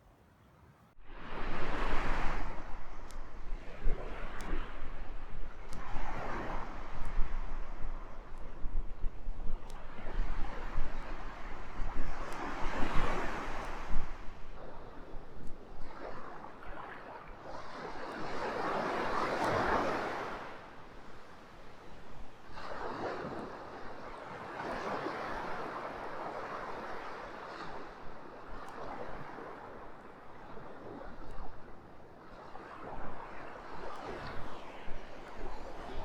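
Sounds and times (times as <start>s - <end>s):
surf washing onto beach: 1.0s - 36.0s.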